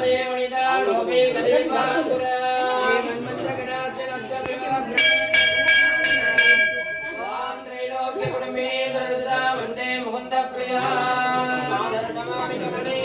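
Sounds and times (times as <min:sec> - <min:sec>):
person chanting devotional melody: 0:03.6 - 0:13.0
bell struck rapidly: 0:05.0 - 0:07.7.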